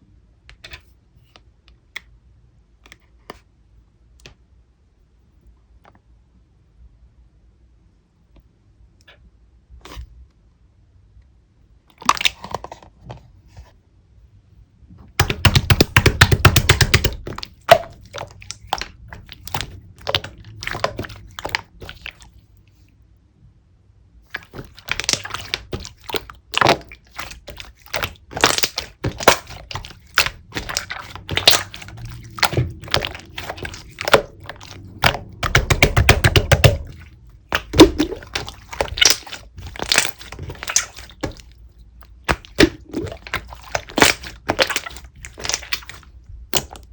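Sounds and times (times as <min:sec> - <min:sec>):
slime squished by hand: 0:11.9 - 0:12.8, 0:15.1 - 0:22.5, 0:24.2 - 0:46.9.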